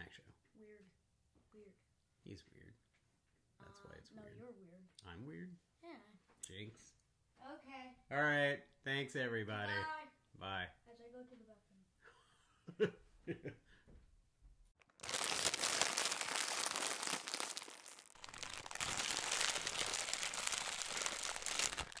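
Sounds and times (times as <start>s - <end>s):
dense static-like crackling: 14.8s - 22.0s.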